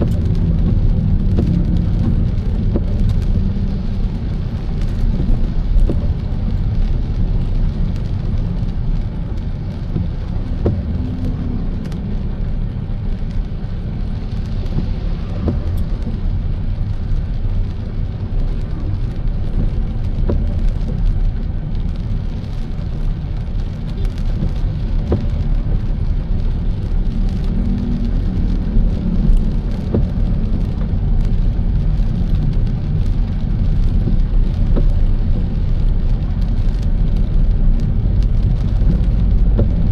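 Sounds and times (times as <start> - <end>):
raindrops ticking on car: 0.0 - 39.9
road and engine rumble: 0.0 - 39.9.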